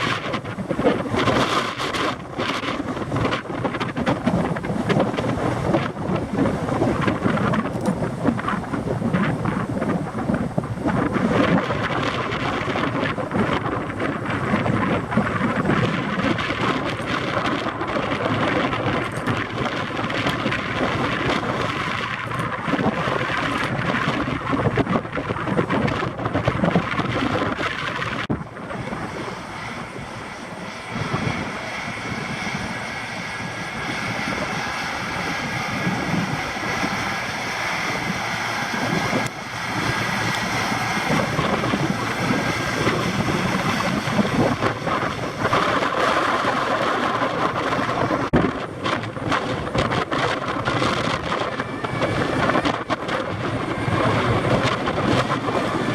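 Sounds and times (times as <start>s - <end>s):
jet engine noise: 0.0s - 55.9s
wind buffeting microphone: 0.0s - 55.9s.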